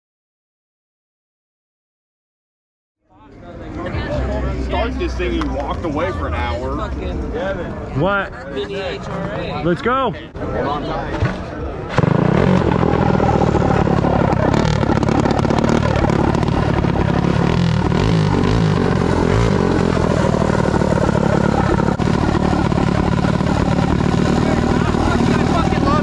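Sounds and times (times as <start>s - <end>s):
minibike engine revving: 11.9s - 26.0s.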